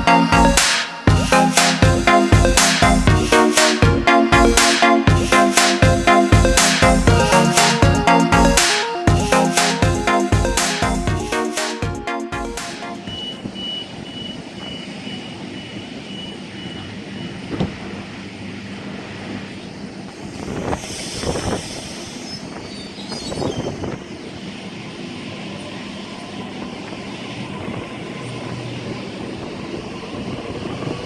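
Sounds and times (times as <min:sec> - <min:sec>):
train rail rumble: 0:00.0 - 0:11.6, 0:12.4 - 0:31.0
train clanks: 0:12.6 - 0:31.0.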